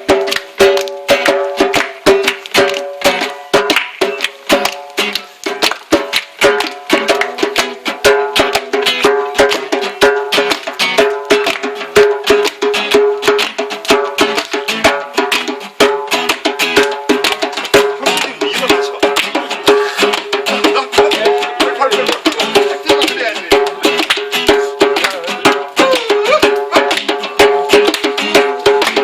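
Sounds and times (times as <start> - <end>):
djembe hand drum strikes: 0.0 - 29.0
acoustic guitar chords: 6.4 - 29.0.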